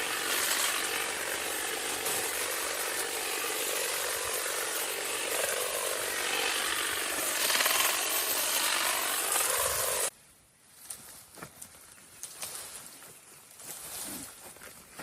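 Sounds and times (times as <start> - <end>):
power tool cutting: 0.0 - 10.1.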